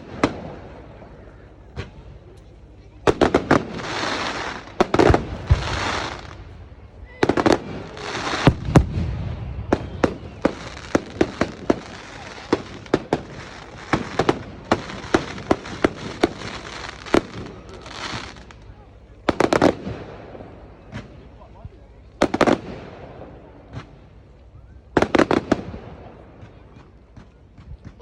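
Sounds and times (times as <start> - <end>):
fireworks bangs: 0.0 - 2.3, 3.0 - 21.4, 22.2 - 24.2, 24.9 - 28.0
fireworks hissing bursts: 3.1 - 21.2.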